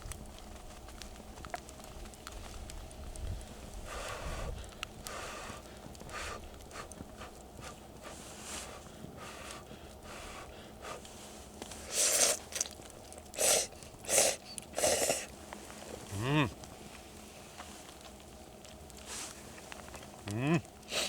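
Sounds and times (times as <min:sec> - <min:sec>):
slurping noodles: 0:11.8 - 0:15.3.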